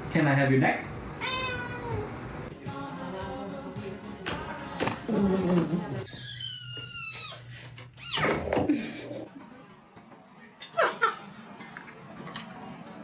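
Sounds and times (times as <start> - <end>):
cat meowing: 1.2 - 2.0.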